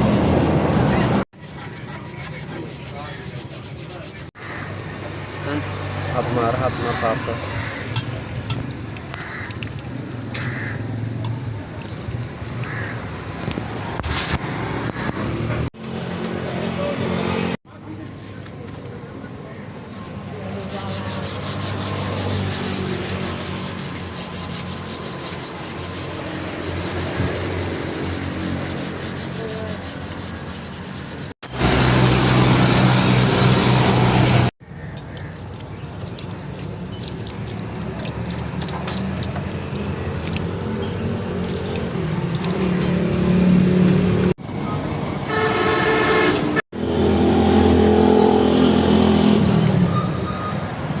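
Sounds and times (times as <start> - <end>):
metal being scrubbed by hand: 0.0 - 4.4, 19.9 - 32.3
vehicle engine running: 31.4 - 34.5
horn toots: 45.2 - 47.3.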